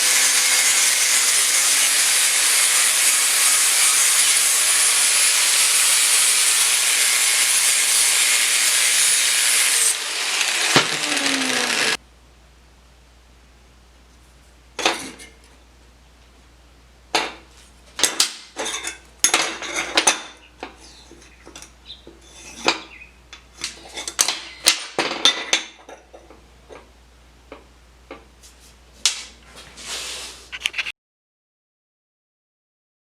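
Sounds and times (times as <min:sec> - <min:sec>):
steel clanking against metal: 0:18.0 - 0:26.9
brief hiss: 0:29.8 - 0:30.5.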